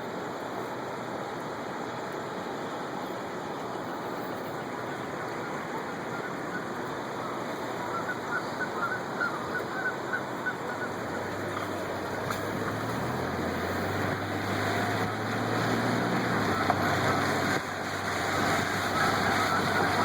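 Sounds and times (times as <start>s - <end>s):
river current rushing: 0.0s - 20.0s
geese honking: 5.1s - 20.0s.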